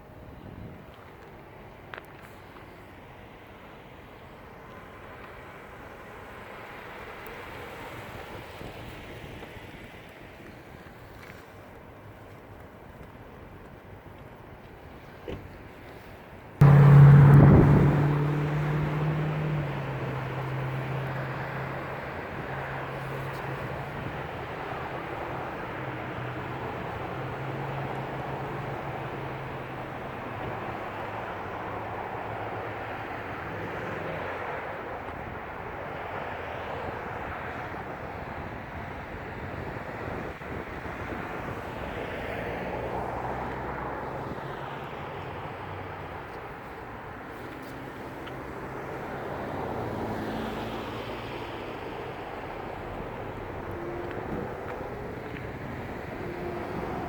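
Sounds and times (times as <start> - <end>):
traffic noise: 0.0 - 57.0
tyres on road: 0.0 - 57.0
car engine running: 16.6 - 21.2
vehicle engine humming: 16.6 - 36.0, 40.9 - 57.0.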